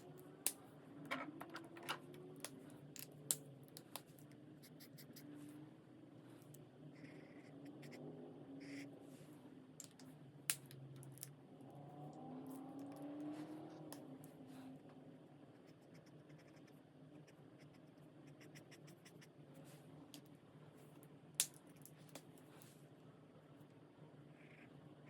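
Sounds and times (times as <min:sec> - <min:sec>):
marker tips scratching on paper: 0:04.6 - 0:05.3, 0:15.6 - 0:19.3.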